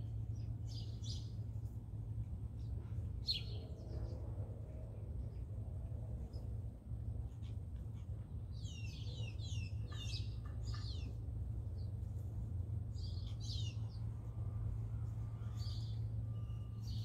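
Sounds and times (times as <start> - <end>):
small songbird chirping: 0.0 - 1.6, 2.5 - 4.2, 8.5 - 14.4, 15.3 - 17.0
steady low hum: 0.0 - 17.0.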